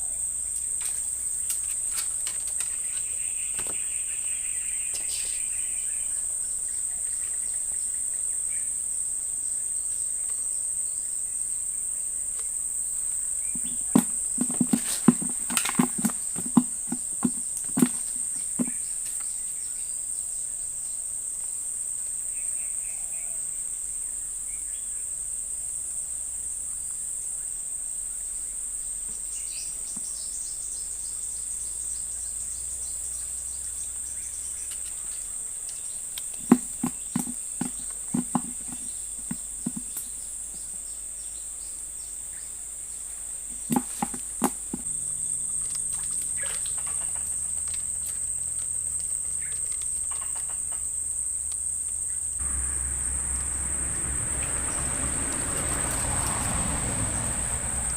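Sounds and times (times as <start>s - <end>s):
insects droning: 0.0s - 57.9s
sharp knocks: 13.6s - 18.8s, 36.4s - 40.0s, 43.5s - 44.9s.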